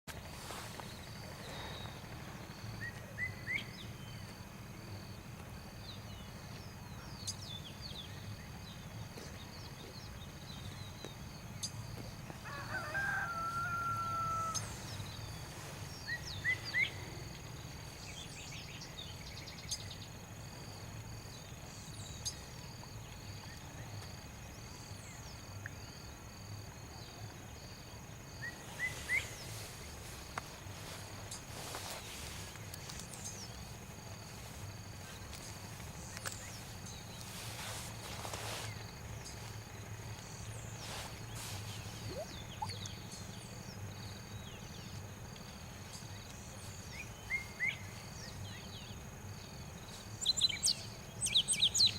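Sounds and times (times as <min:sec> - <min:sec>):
insect drone: 0:00.2 - 0:51.9
rooster crowing: 0:12.4 - 0:14.8
small birds chirping: 0:14.2 - 0:26.0, 0:28.4 - 0:51.9.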